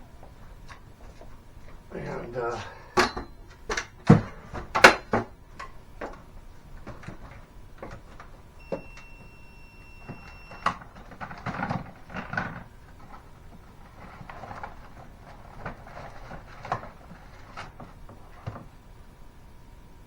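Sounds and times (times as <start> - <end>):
parts and tools clicking and knocking: 2.9 - 9.1.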